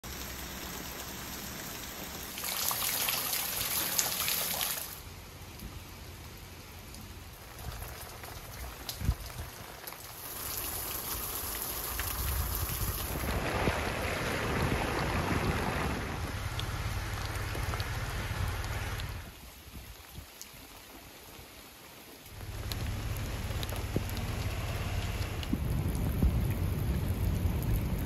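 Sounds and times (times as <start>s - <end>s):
heavy rain falling: 0.0s - 28.0s.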